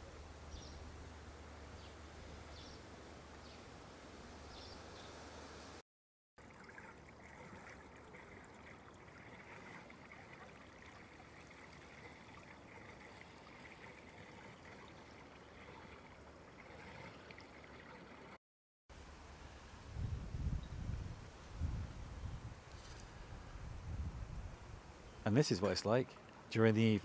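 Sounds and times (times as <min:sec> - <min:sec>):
faint trickling water: 0:06.4 - 0:27.0.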